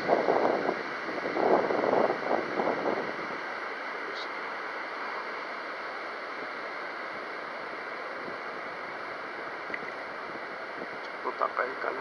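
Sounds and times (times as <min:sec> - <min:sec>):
strong wind rushing: 0:00.0 - 0:03.4.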